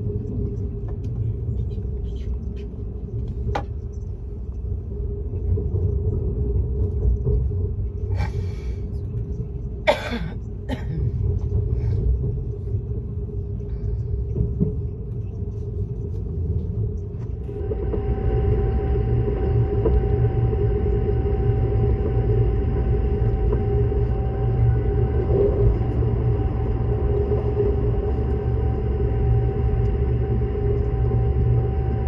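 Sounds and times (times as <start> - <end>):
train interior rumble: 0.0 - 32.0
steady pitched tone: 17.5 - 32.0.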